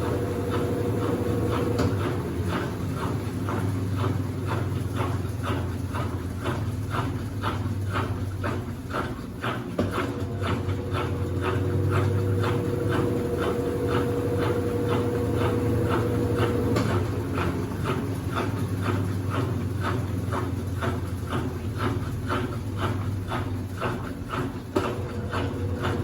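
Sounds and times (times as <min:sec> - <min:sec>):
motor whine: 0:00.0 - 0:03.2, 0:10.2 - 0:18.4
washing machine swishing: 0:00.0 - 0:26.0.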